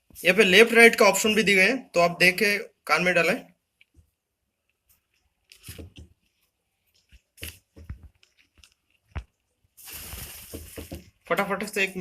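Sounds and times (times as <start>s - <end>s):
earphone handling rustles: 4.7s - 9.4s.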